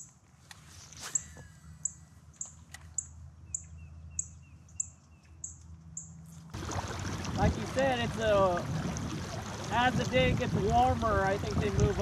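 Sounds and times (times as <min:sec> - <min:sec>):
bird chirping: 0:01.0 - 0:06.2.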